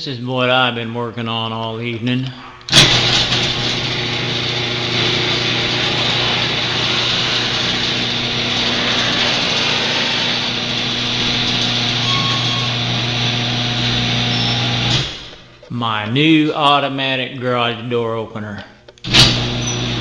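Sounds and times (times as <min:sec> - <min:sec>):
garage door opener running: 0:02.7 - 0:15.5, 0:19.0 - 0:20.0.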